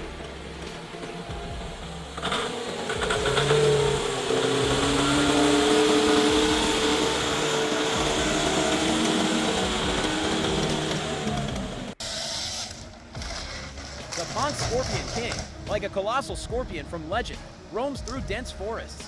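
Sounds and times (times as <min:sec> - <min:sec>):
heavy machine engine droning: 0:00.0 - 0:12.0.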